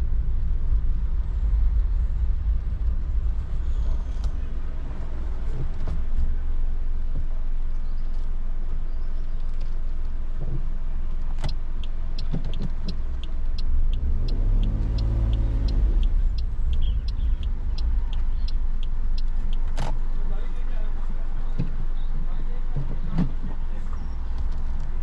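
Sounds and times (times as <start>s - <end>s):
car engine rumble: 0.0s - 25.0s
turn signal ticking: 8.7s - 20.3s.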